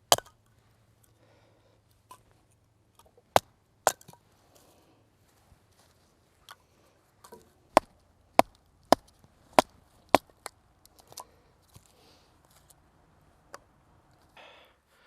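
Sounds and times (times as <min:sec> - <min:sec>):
wood chopping strikes: 0:00.0 - 0:00.4, 0:03.3 - 0:04.2, 0:07.2 - 0:10.6.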